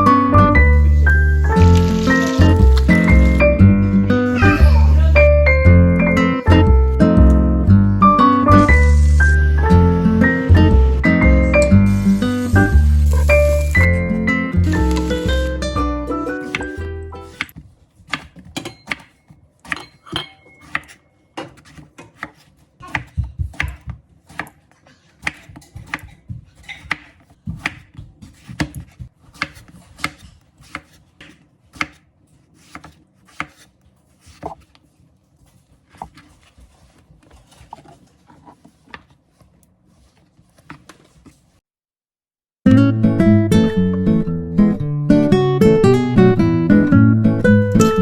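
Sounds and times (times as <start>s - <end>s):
knife chopping on cutting board: 16.5s - 19.9s, 20.6s - 32.0s, 32.6s - 33.7s.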